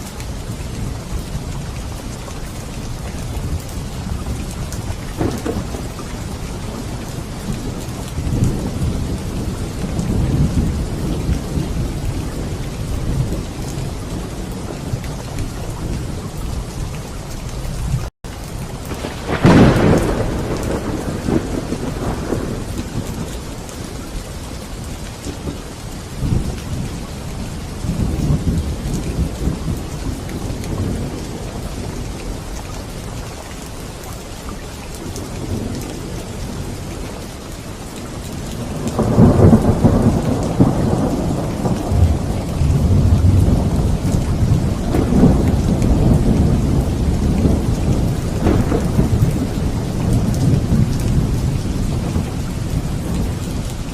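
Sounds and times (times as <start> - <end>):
steady rain: 0.0 - 53.9
rolling thunder: 3.4 - 17.0, 18.7 - 32.3, 38.3 - 53.9.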